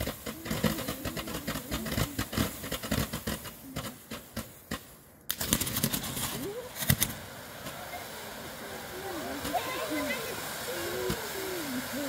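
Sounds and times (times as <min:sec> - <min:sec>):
fireworks crackling: 0:00.0 - 0:12.0.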